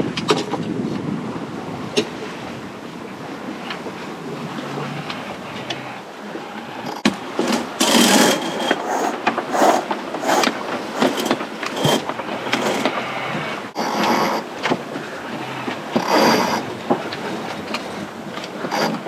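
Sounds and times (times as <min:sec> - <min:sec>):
wind and water rushing: 0:00.0 - 0:19.0
deck hardware clicking and clattering: 0:06.9 - 0:13.0.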